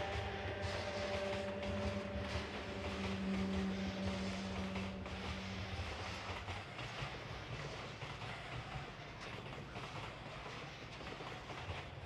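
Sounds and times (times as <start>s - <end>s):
steady hum: 0.0s - 6.4s
freight train rumbling past: 0.0s - 8.9s.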